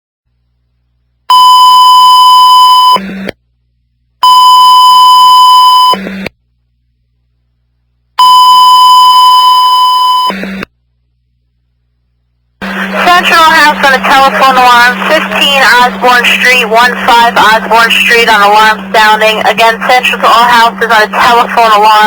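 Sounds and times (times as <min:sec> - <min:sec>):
long high-pitched radio beeps: 0:01.3 - 0:03.0, 0:04.2 - 0:06.0, 0:08.2 - 0:10.4
radio squelch noise: 0:12.6 - 0:22.0.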